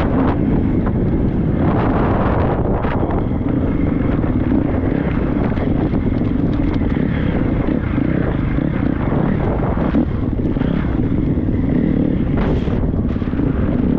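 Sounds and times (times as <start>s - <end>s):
motocross bike engine running: 0.0s - 13.9s
knocks and clatter: 4.2s - 7.1s.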